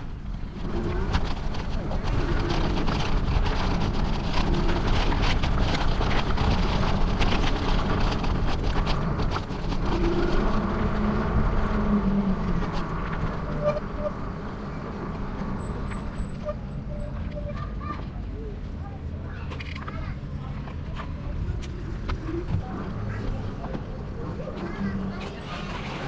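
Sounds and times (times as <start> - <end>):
bicycle clicks and rattles: 0.0 - 17.4
wind and road noise: 0.0 - 26.0.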